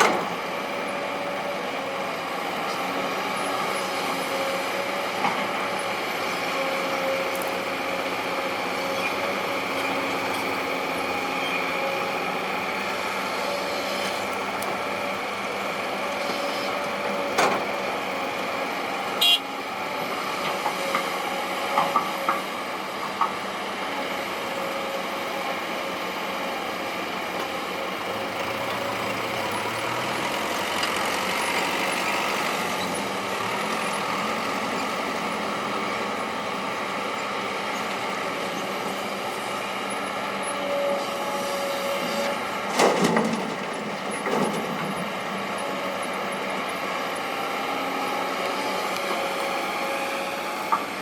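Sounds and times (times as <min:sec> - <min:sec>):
heavy machinery running: 0:19.7 - 0:51.0.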